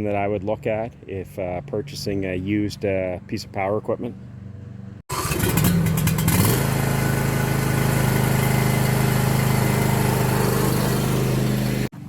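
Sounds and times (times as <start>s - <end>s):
lawn tractor engine starting: 5.1s - 12.0s.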